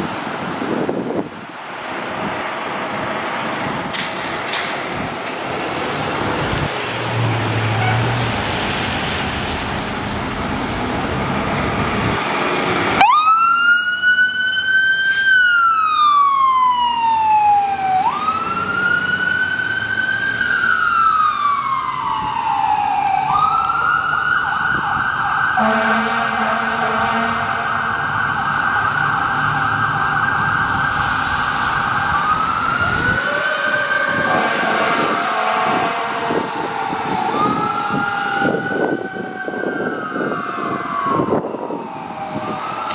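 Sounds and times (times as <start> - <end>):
fire truck siren wailing: 0.0 - 42.9
truck and road noise: 0.0 - 42.9
low horn blast: 25.6 - 28.3, 34.1 - 36.6.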